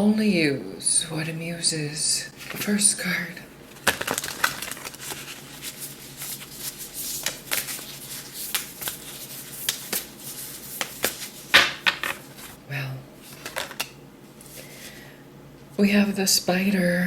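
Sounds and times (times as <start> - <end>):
cards shuffling: 2.4 - 2.8, 3.7 - 12.6, 13.2 - 14.9.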